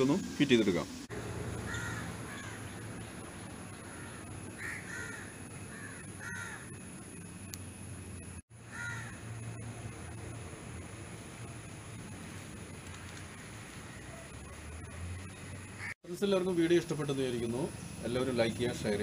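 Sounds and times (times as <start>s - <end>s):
birds calling: 1.4s - 7.3s, 8.6s - 9.7s, 12.7s - 16.0s.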